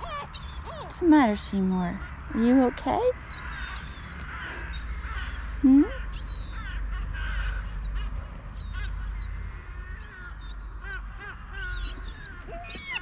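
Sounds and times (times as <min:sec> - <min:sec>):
gulls calling: 0:00.0 - 0:13.0.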